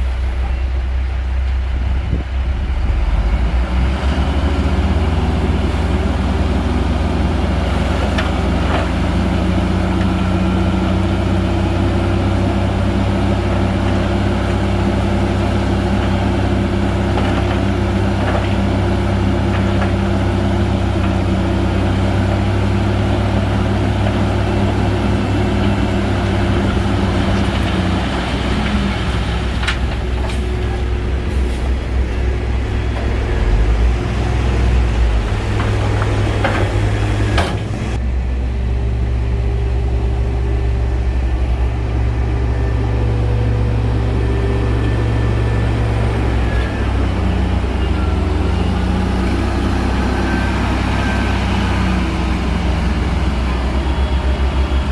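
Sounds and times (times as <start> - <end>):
bulldozer diesel engine droning: 0.0 - 54.9.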